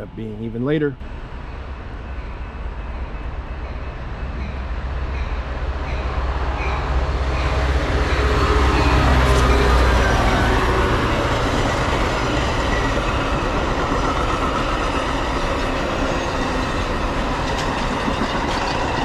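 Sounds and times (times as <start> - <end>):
train approaching rumble: 0.0 - 19.0.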